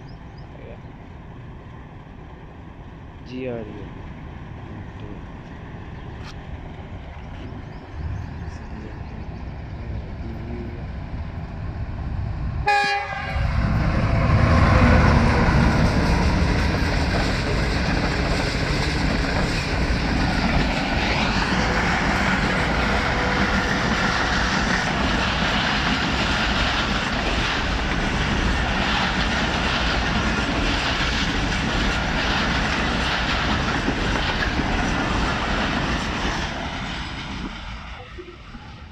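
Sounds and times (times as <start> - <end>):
train rumbling past: 0.0 - 38.9
train horn: 12.6 - 13.6.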